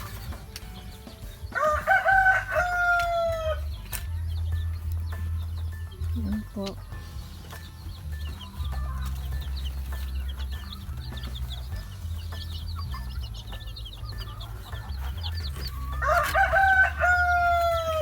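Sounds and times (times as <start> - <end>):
chicks peeping: 0.0 - 18.0
rooster crowing: 1.5 - 3.8, 14.3 - 18.0.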